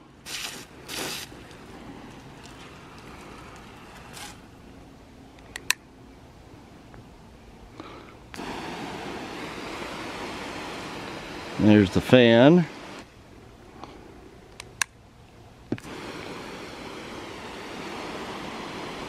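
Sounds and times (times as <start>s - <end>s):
water spray hissing: 0.0s - 4.5s, 8.3s - 13.1s, 15.7s - 19.0s.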